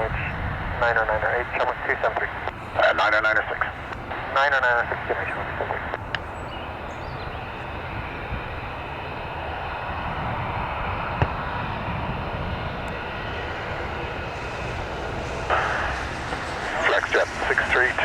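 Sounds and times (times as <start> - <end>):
airliner engines running: 0.0 - 18.0.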